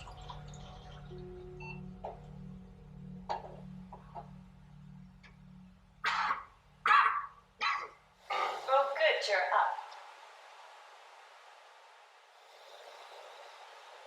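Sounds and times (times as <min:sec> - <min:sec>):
low pulsing hum: 0:00.0 - 0:09.1.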